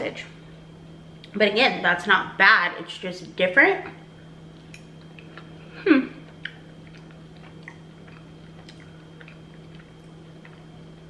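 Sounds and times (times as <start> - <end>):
steady low hum: 0.0 - 11.0
person humming mm: 5.7 - 6.3
person chewing with soft mouth clicks: 6.2 - 11.0.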